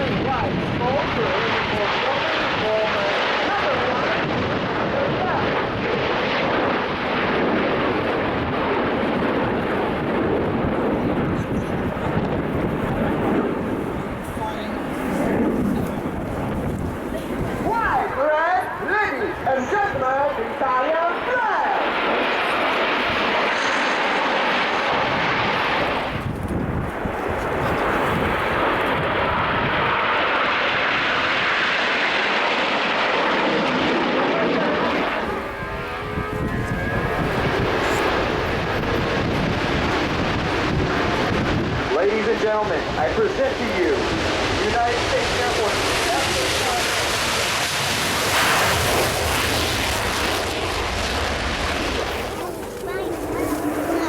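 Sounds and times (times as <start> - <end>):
jets flying past: 0.0 - 54.0.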